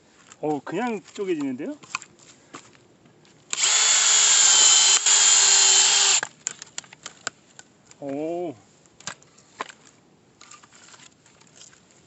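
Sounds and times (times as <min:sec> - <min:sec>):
power drill boring into log: 0:03.5 - 0:06.3.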